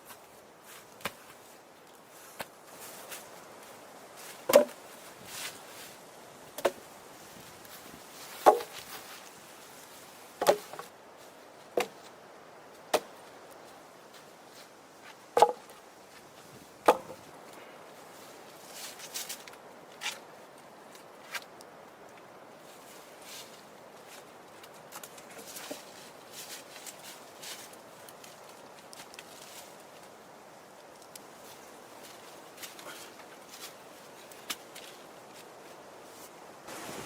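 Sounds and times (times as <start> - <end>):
axe chopping wood: 4.5 - 4.8, 8.4 - 8.8, 10.4 - 10.8, 15.4 - 15.6, 16.8 - 17.2.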